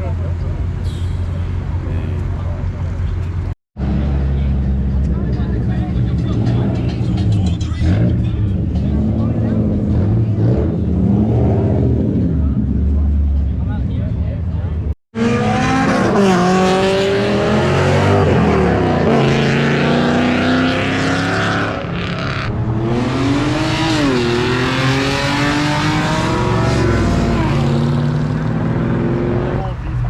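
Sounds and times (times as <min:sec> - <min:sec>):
car engine revving: 0:00.6 - 0:13.8, 0:15.2 - 0:30.0.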